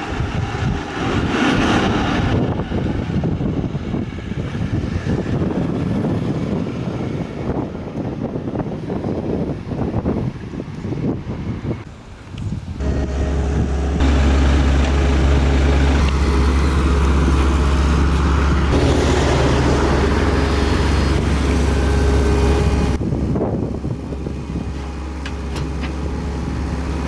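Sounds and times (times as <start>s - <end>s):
engine running: 12.8s - 27.0s.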